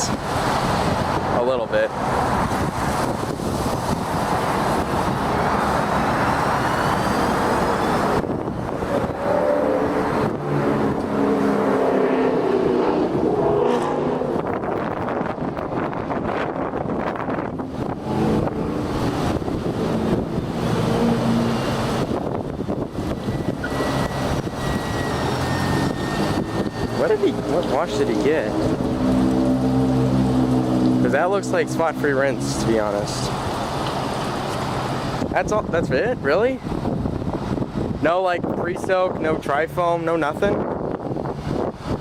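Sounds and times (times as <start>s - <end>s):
car wash machinery rushing: 0.0s - 42.0s.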